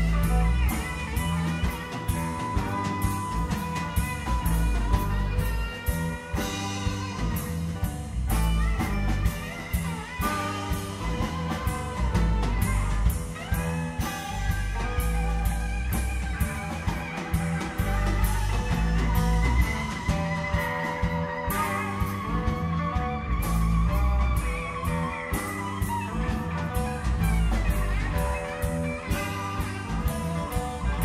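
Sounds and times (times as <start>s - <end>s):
bass guitar: 0.0s - 31.0s
lead guitar bending melodic lines: 0.0s - 31.0s
steady drum beat: 0.0s - 31.0s.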